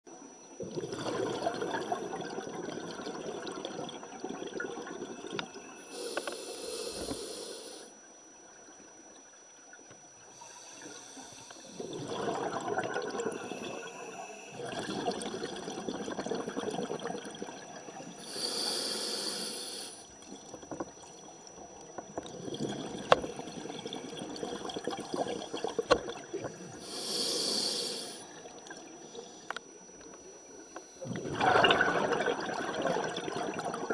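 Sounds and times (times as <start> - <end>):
bubbling exhales underwater: 0.6 - 7.4, 11.0 - 29.4, 31.0 - 33.9
regulator inhale hisses: 5.8 - 7.9, 10.3 - 11.9, 18.2 - 20.1, 26.7 - 28.4.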